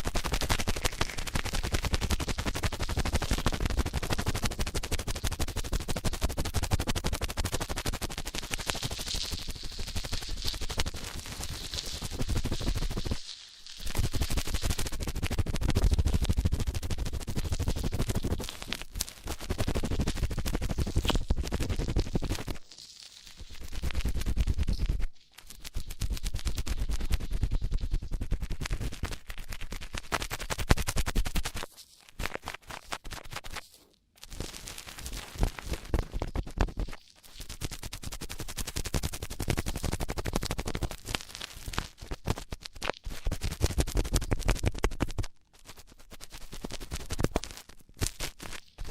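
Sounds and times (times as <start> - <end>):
scratching and rubbing on microphone: 0.0 - 48.9.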